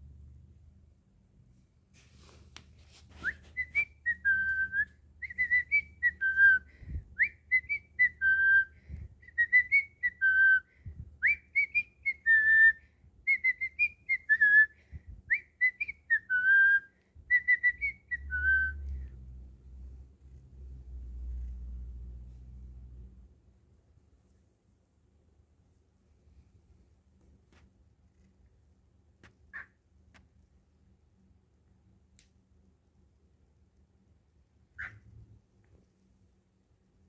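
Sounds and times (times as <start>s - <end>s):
cockatiel whistling a tune: 3.2s - 19.0s.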